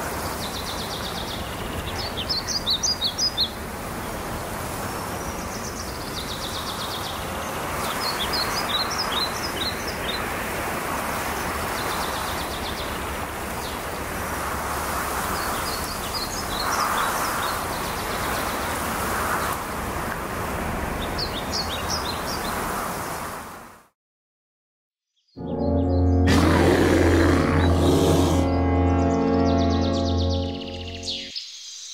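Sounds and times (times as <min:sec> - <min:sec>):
songbirds chirping and trilling: 0:00.3 - 0:10.3, 0:25.2 - 0:31.9.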